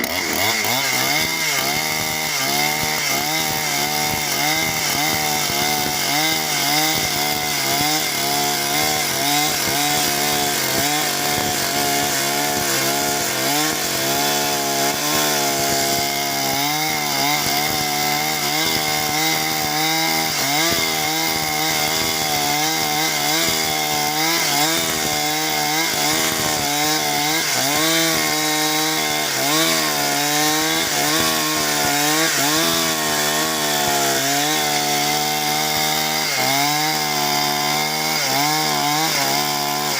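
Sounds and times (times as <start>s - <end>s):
chainsaw cutting timber: 0.0s - 39.9s.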